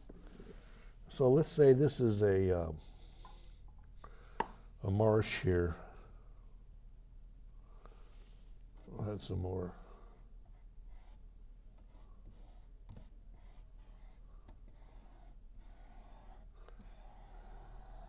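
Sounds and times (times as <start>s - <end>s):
paint brush scratching on surface: 8.8s - 18.0s.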